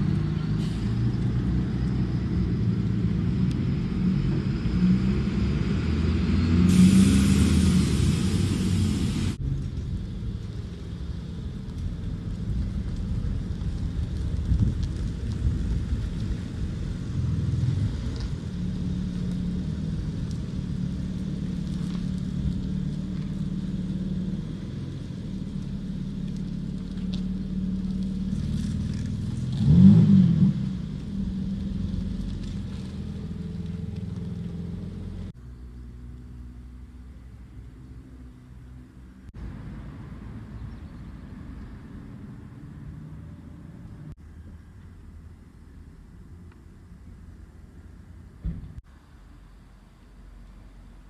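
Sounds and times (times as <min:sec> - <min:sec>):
car engine passing at speed: 0:00.0 - 0:09.4.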